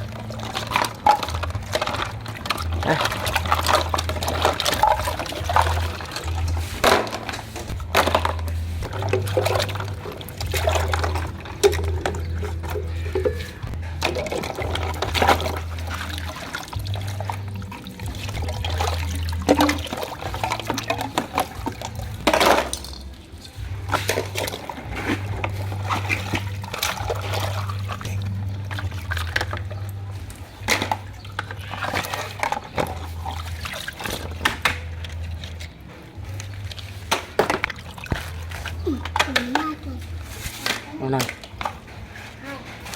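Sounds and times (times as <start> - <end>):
low hum: 0.0 - 32.2
water splashing and pouring: 0.0 - 42.9.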